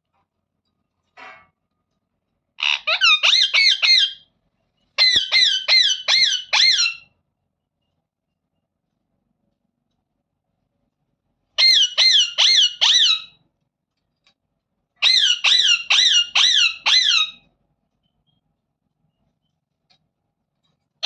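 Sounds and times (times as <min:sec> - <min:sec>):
parrot calling: 0:02.6 - 0:04.3, 0:05.0 - 0:07.1, 0:11.6 - 0:13.4, 0:15.0 - 0:17.5.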